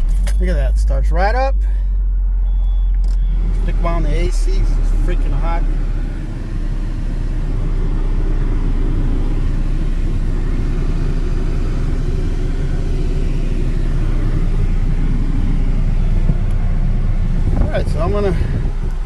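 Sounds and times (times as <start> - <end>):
car engine idling: 0.0 - 19.0
air conditioning running: 4.6 - 19.0.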